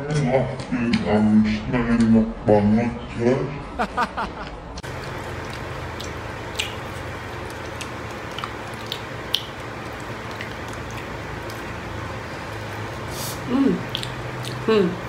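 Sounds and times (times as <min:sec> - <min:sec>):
low background hum: 0:00.0 - 0:15.0
chewing: 0:04.8 - 0:15.0
wet mouth clicks: 0:04.9 - 0:11.7, 0:13.2 - 0:15.0.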